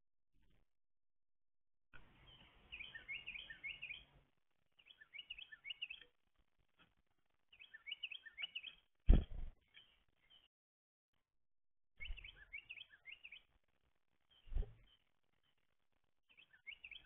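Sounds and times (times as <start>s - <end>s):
songbird chirping: 2.0s - 8.9s, 9.6s - 10.5s, 12.0s - 17.0s.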